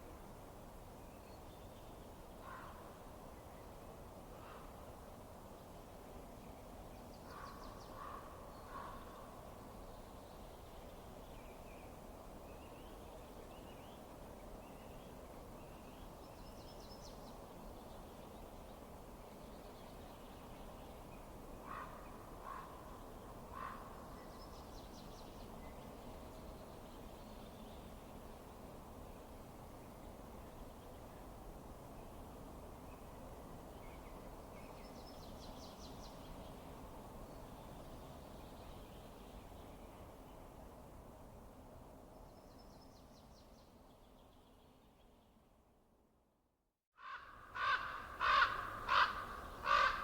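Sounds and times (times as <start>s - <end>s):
steady low hiss: 47.3s - 50.0s.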